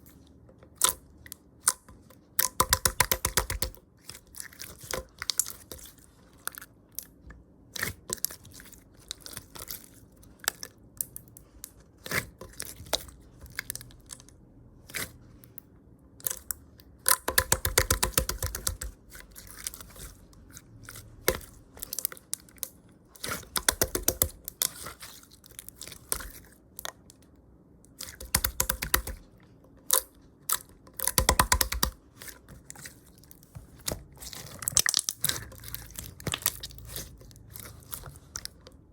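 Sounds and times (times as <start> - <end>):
slime crackling and clicking: 21.2 - 24.9, 27.9 - 38.8
slime popping: 33.8 - 38.5.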